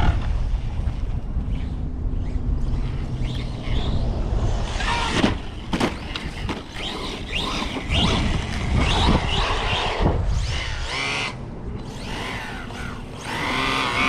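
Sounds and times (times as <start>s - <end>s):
low rumble: 0.0s - 6.8s
rc car electric motors whining: 1.4s - 14.0s.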